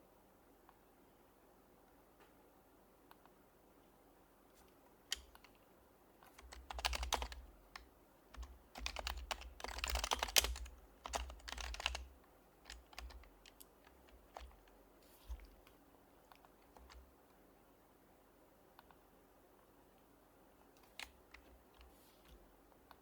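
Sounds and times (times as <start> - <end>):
keyboard typing: 5.1 - 5.6, 6.3 - 15.7, 16.3 - 17.1.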